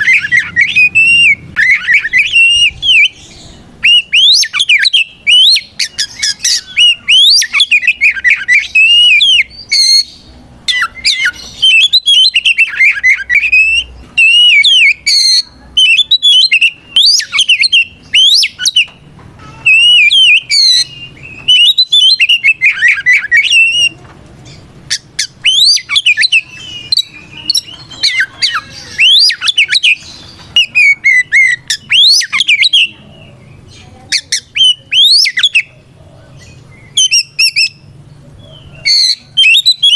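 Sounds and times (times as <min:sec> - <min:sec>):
songbird singing whistled notes: 0:00.0 - 0:19.0, 0:19.6 - 0:39.9.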